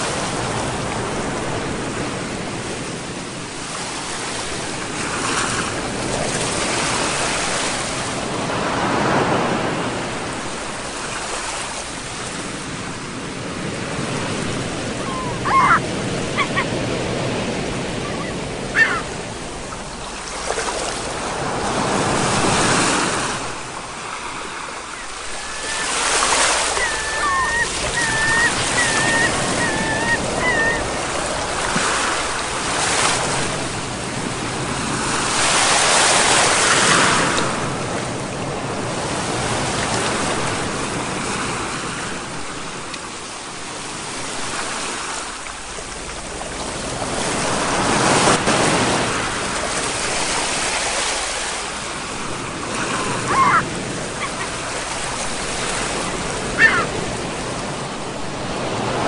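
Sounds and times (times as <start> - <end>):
sea waves washing ashore: 0.0 - 59.0
wavering high tone: 25.3 - 30.9.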